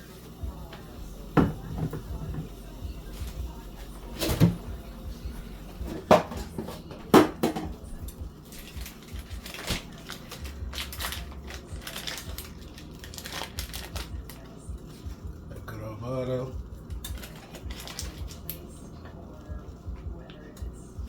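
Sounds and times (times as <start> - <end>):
pots and dishes clattering: 1.4 - 2.6, 4.1 - 4.7, 5.8 - 7.8.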